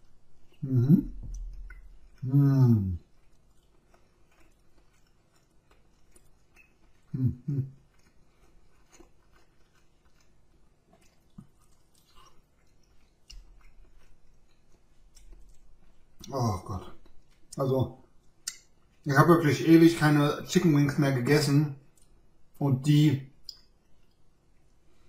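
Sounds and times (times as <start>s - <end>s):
person chewing wet smacks: 0.0s - 19.1s, 21.8s - 22.3s, 23.3s - 24.8s
person humming with mouth full: 0.6s - 1.2s, 7.1s - 7.7s.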